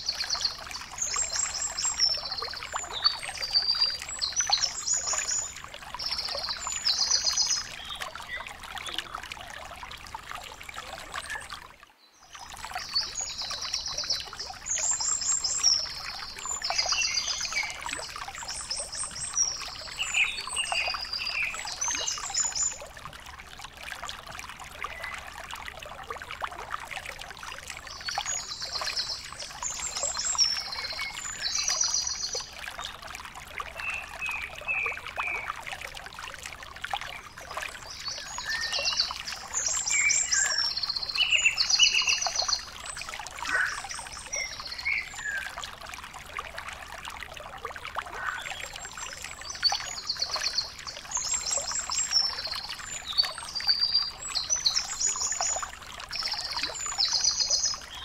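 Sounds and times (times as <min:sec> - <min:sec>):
bird singing trilled phrases: 0:00.0 - 0:09.1, 0:12.8 - 0:22.8, 0:27.9 - 0:32.9, 0:33.8 - 0:35.5, 0:37.1 - 0:45.5, 0:48.2 - 0:58.0.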